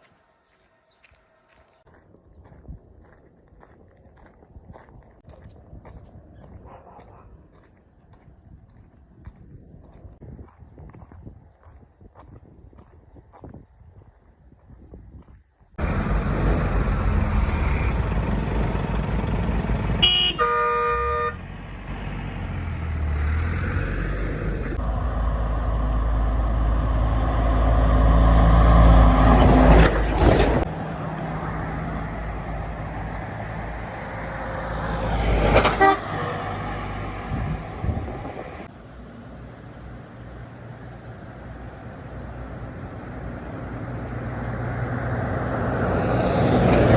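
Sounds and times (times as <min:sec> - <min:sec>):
road vehicle running: 0:15.8 - 0:46.9
vehicle horn: 0:19.9 - 0:21.6, 0:35.7 - 0:36.5.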